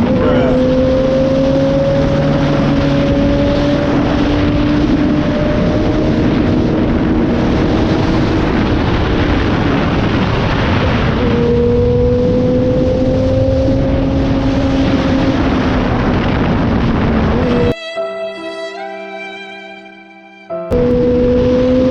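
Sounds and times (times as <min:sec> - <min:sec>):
motorcycle engine running: 0:00.0 - 0:09.8
wind rushing on microphone: 0:00.0 - 0:17.8, 0:20.7 - 0:21.9.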